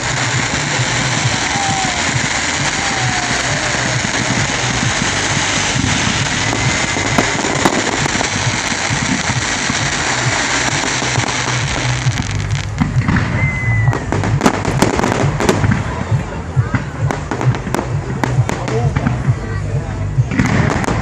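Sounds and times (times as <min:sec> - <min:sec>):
firework whistle: 0:00.0 - 0:15.6
firework bangs: 0:00.0 - 0:21.0
fireworks crackling: 0:00.0 - 0:21.0.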